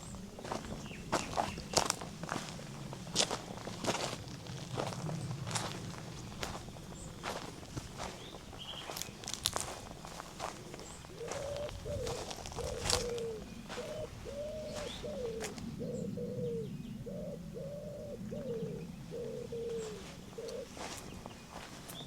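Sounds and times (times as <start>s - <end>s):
footsteps: 0.4s - 15.6s, 19.7s - 22.0s
bird cooing: 10.0s - 22.0s.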